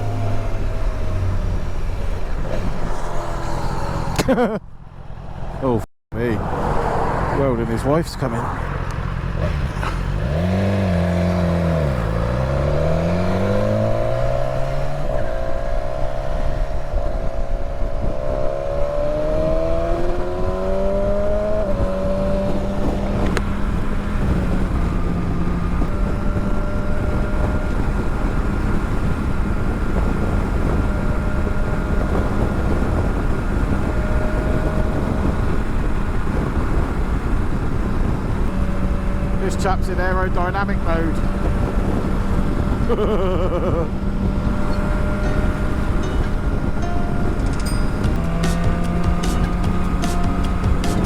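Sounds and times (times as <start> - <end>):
motorcycle engine accelerating: 0.0 - 5.5, 8.5 - 51.0
wind rush: 0.0 - 51.0.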